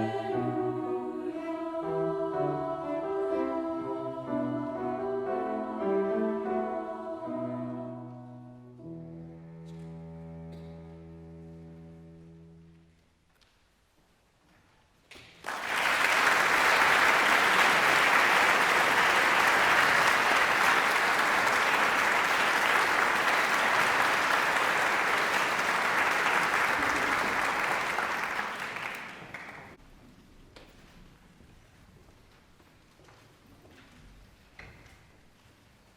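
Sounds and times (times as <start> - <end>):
audience applauding: 15.4 - 29.8.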